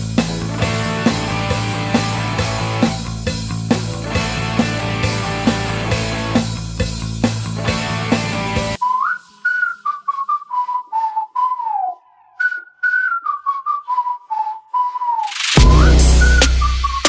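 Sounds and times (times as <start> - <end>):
music: 0.0 - 8.8, 15.3 - 17.0
person whistling a tune: 2.4 - 3.1, 8.6 - 17.0.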